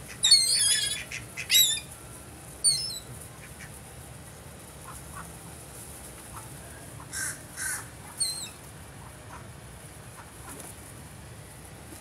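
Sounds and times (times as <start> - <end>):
bird harsh squawks: 0.1 - 1.8, 7.1 - 8.6.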